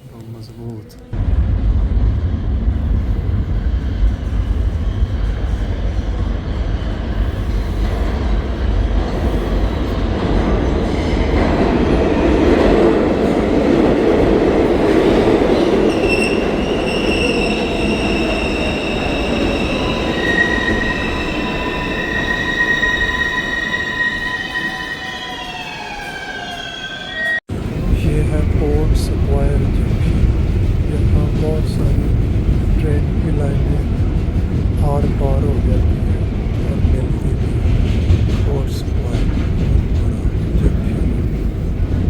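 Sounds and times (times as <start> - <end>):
subway train rumbling on rails: 1.0 - 42.0
wheels squealing on rails: 15.5 - 27.4.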